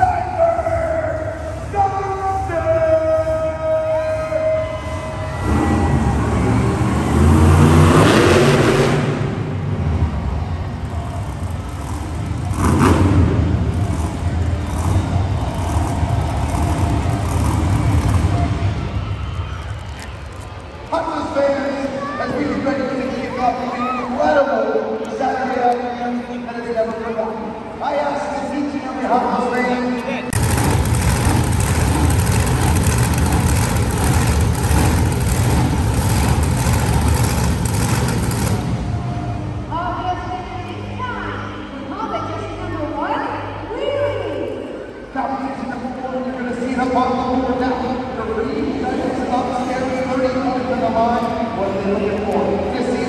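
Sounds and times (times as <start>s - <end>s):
loud low truck engine: 3.3s - 20.9s, 30.2s - 40.0s.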